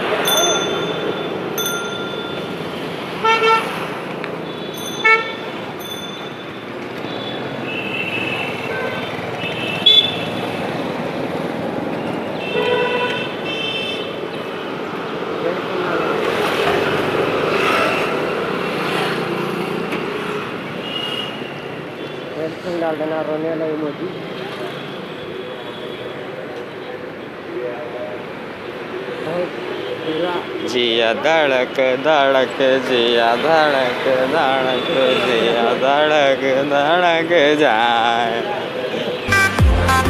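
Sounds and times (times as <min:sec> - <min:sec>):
vehicle horns beeping: 0:00.0 - 0:10.7, 0:12.0 - 0:14.6, 0:20.6 - 0:23.0, 0:29.6 - 0:40.0
road riding noise: 0:00.0 - 0:40.0.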